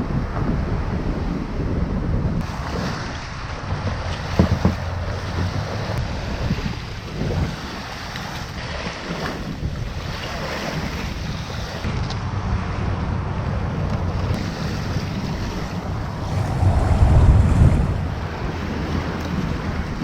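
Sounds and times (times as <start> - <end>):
wind buffeting microphone: 14.8 - 19.8.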